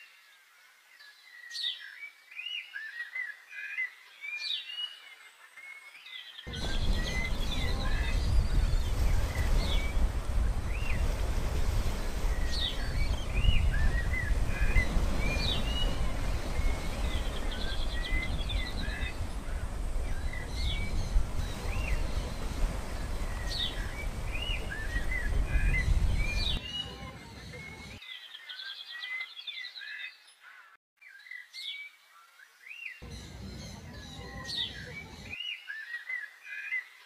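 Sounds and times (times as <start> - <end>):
small birds chirping and twittering: 0.0 - 37.0
low rumbling noise: 6.5 - 27.2, 33.0 - 35.4.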